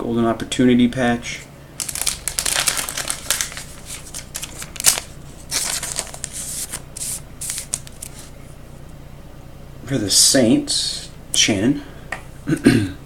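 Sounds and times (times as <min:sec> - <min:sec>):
cards and plastic sleeves rustling: 0:01.8 - 0:08.4.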